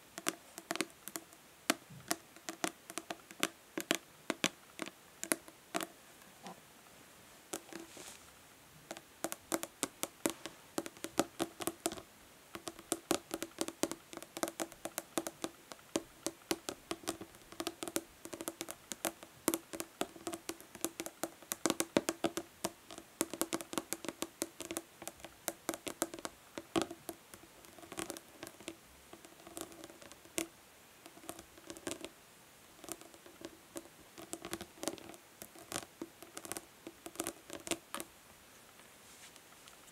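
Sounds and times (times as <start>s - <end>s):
fingernails tapping plastic bottle: 12.6s - 32.1s.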